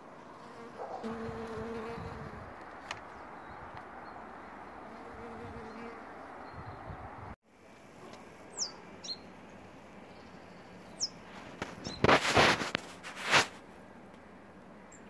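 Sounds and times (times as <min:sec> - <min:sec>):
small bird chirping: 0:08.5 - 0:09.3, 0:10.1 - 0:12.1.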